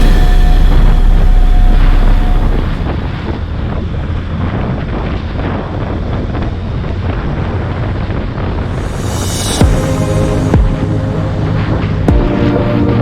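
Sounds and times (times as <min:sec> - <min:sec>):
wind buffeting microphone: 0:00.0 - 0:12.1
motorcycle low rumble: 0:00.0 - 0:13.0.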